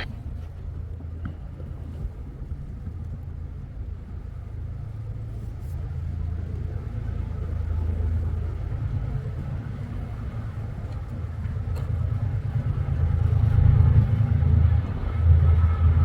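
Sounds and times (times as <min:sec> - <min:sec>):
diesel train rumbling: 0:06.0 - 0:16.0.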